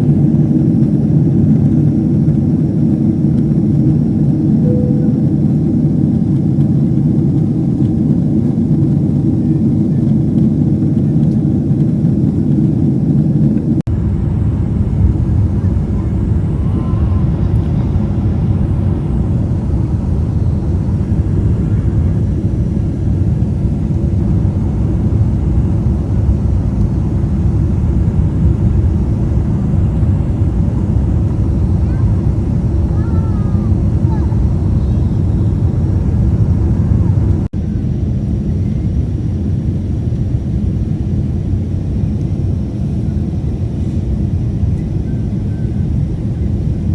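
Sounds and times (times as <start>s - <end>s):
jet engine cabin rumble: 0.0s - 46.9s.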